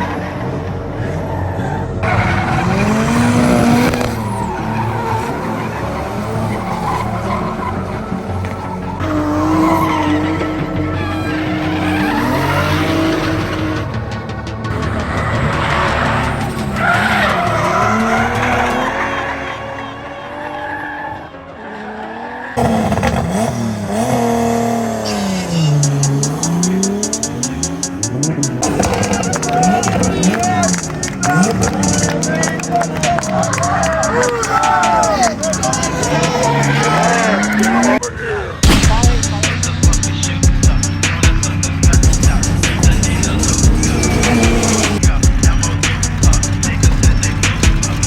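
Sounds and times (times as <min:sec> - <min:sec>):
car engine revving: 0:00.0 - 0:20.5, 0:21.6 - 0:48.0
tyres skidding and squealing: 0:00.0 - 0:48.0
fast high ticking: 0:25.7 - 0:48.0.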